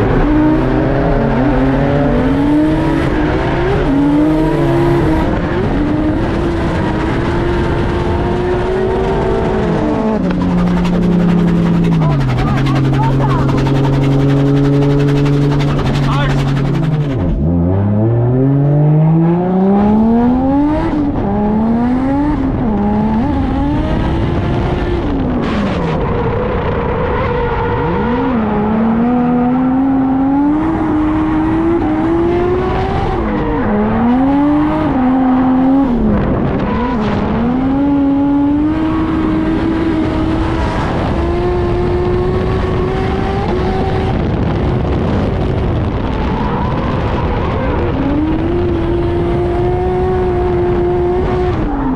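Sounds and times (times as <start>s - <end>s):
car engine revving hard: 0.0s - 51.9s.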